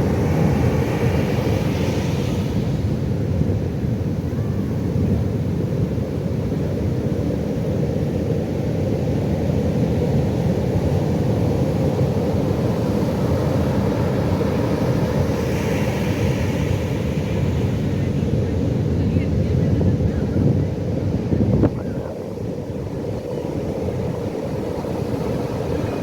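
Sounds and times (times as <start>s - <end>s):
ocean waves breaking: 0.0s - 5.8s, 8.0s - 26.0s
wave washing in: 9.6s - 26.0s.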